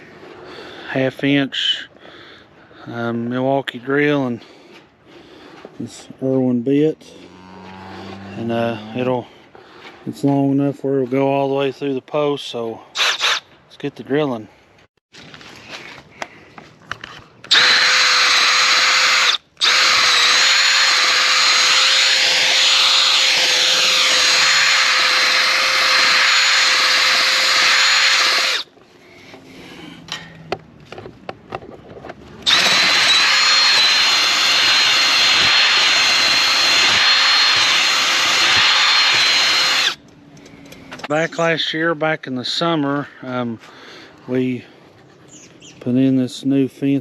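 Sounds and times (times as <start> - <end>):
drill boring through wood: 13.0 - 13.4, 17.5 - 28.7, 32.4 - 40.0.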